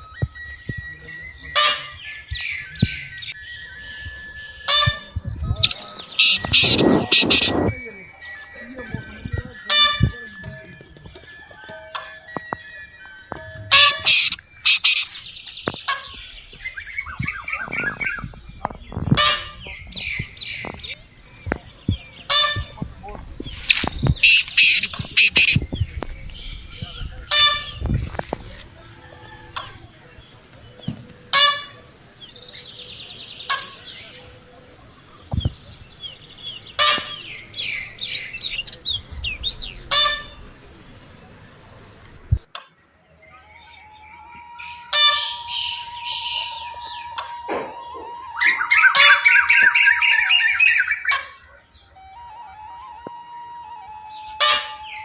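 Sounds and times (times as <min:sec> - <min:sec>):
soft bird chirps: 0:00.0 - 0:42.6
loud harsh fowl calls: 0:01.5 - 0:02.0, 0:06.1 - 0:07.7, 0:13.7 - 0:15.2, 0:19.1 - 0:21.0, 0:22.2 - 0:25.6, 0:26.9 - 0:30.1, 0:31.3 - 0:31.9, 0:36.6 - 0:40.6, 0:44.9 - 0:47.8, 0:48.4 - 0:51.4, 0:54.4 - 0:55.0.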